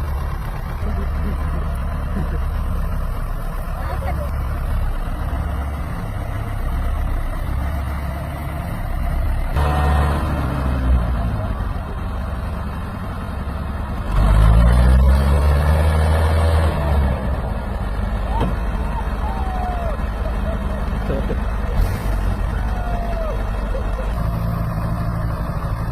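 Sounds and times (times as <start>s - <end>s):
tractor diesel engine under load: 0.0s - 25.9s.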